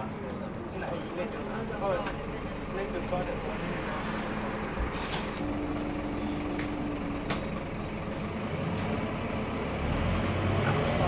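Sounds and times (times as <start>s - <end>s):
bus engine and road drone: 0.0s - 11.0s
steady low tone: 5.4s - 9.0s.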